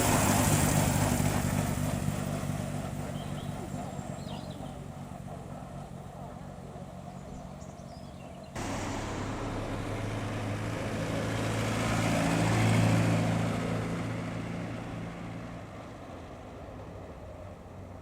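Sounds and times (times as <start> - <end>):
car driving past: 8.6 - 15.8.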